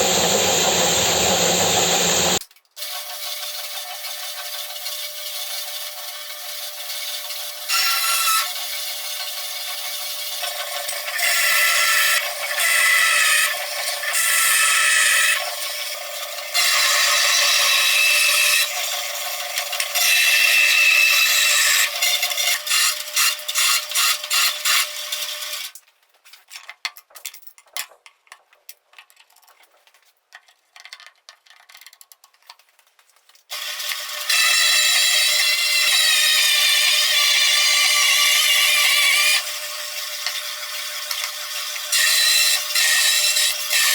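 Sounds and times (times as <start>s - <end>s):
band saw motor whining: 0.0s - 2.4s.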